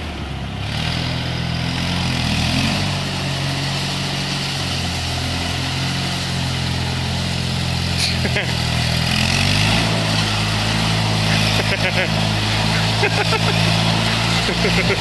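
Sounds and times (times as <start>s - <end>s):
power trowel engine running: 0.0s - 15.0s.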